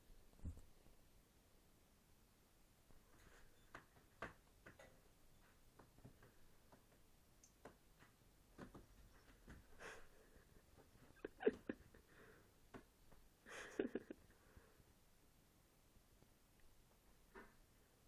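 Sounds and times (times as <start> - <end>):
cats' paws tapping and knocking: 3.2 - 12.0.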